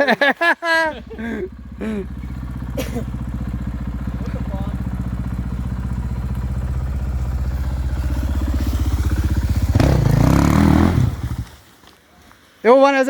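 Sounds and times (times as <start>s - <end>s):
motorcycle engine revving: 0.8s - 11.6s.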